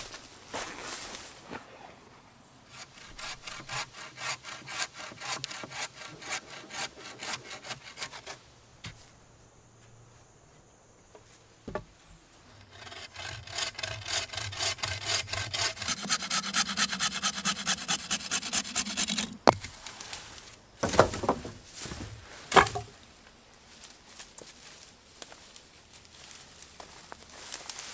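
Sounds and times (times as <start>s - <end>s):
hand saw cutting wood: 2.7s - 8.4s, 12.5s - 19.7s.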